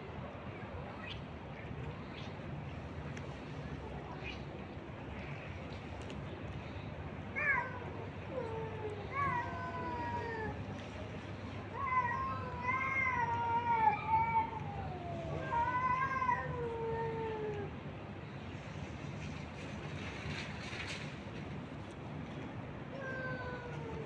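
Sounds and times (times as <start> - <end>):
cats meowing: 11.7 - 17.7, 22.9 - 24.0.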